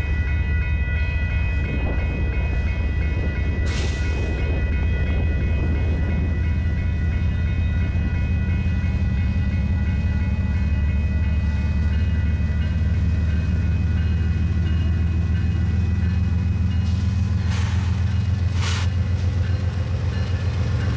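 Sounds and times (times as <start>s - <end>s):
crossing warning bell ringing: 0.0s - 20.9s
diesel locomotive engine rumble: 0.0s - 20.9s.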